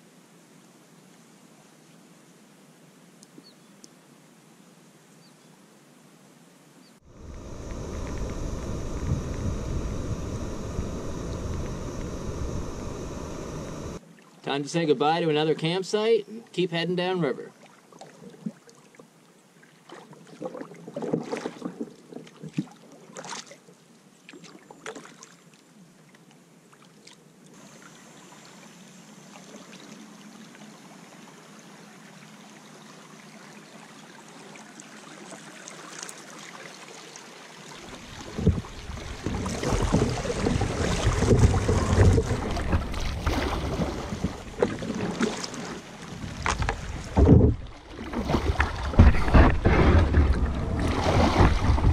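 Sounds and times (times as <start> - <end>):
rushing water noise: 7.0 - 14.6, 34.3 - 51.9
wind buffeting microphone: 7.1 - 14.0
paddle knocks and splashes: 20.4 - 23.4, 38.0 - 51.9.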